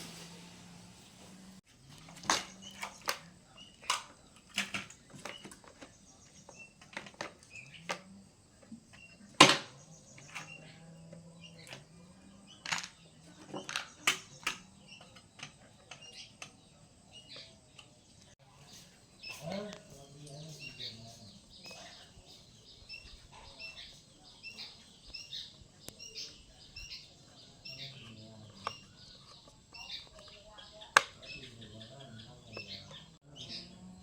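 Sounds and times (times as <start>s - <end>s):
tools and engine parts clinking: 1.9s - 16.6s.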